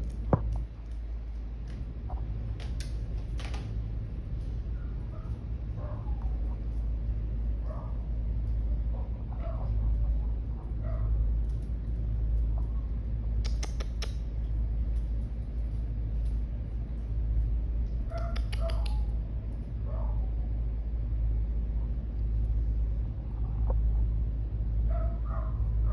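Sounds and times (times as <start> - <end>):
low rumble: 18.9 - 25.9.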